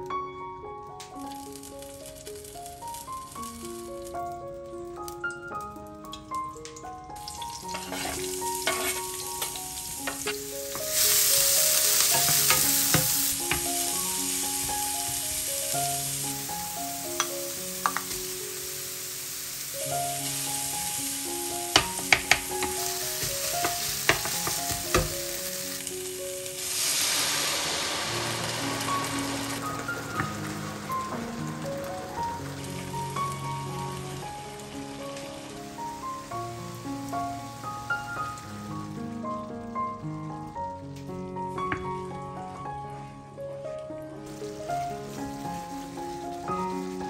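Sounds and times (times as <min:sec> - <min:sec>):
soft melodic background music: 0:00.0 - 0:26.9, 0:27.6 - 0:47.0
onion sizzling in oil: 0:01.1 - 0:43.2, 0:44.2 - 0:47.0
wooden spoon scraping pan: 0:07.6 - 0:11.2.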